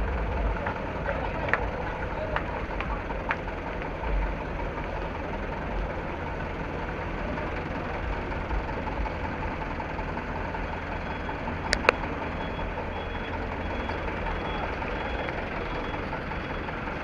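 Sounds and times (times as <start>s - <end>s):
truck engine idling: 0.0s - 17.0s
sharp clicks: 11.7s - 12.2s.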